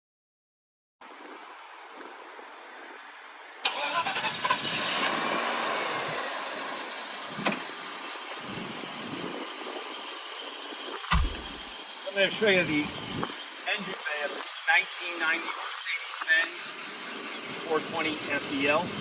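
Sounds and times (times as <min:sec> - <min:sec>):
car engine starting and idling: 0:03.6 - 0:08.4, 0:11.1 - 0:12.7.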